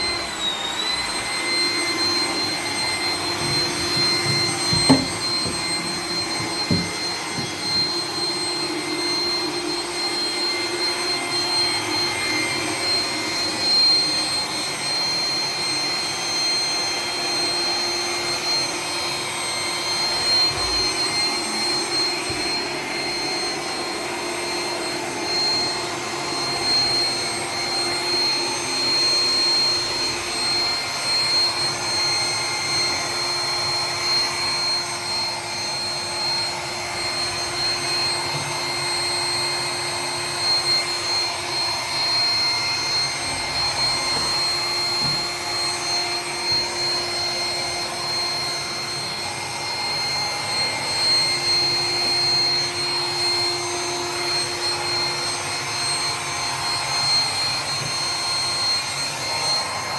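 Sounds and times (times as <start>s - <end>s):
robot vacuum running: 0.0s - 59.9s.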